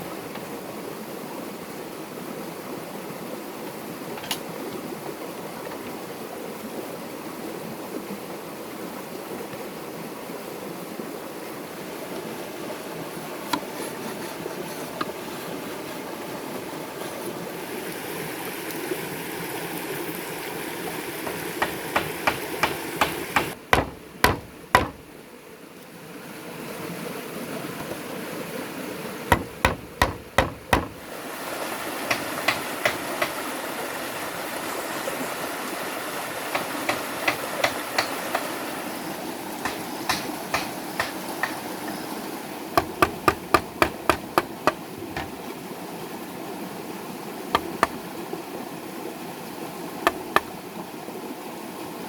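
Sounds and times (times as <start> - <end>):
tool knocking on wood: 21.2 - 25.1, 29.3 - 31.1, 32.1 - 33.4, 36.6 - 38.5, 39.6 - 41.6, 42.8 - 45.4, 47.6 - 48.0, 50.1 - 50.5.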